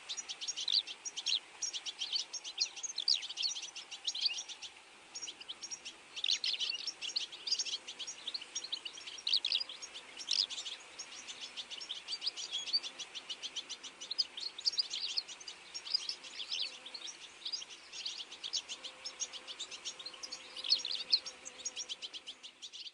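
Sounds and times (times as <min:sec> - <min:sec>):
birds chirping: 0:00.0 - 0:22.9.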